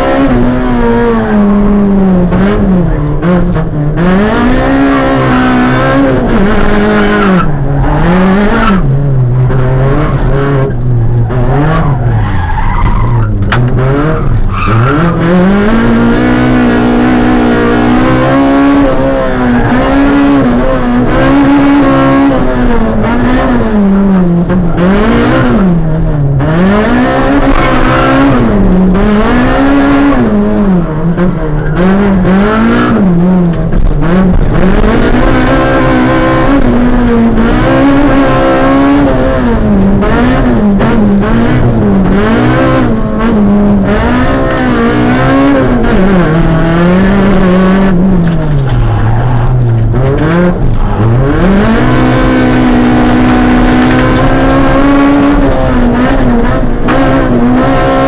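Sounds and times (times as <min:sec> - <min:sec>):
car engine revving from inside: 0:13.7 - 0:58.0.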